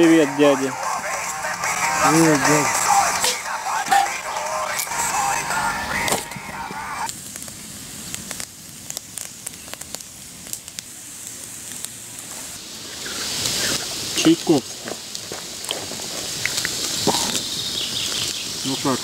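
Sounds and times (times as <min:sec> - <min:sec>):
background music with singing: 0:00.0 - 0:07.1
campfire crackling and popping: 0:00.0 - 0:19.0
soft hiss: 0:00.0 - 0:19.0.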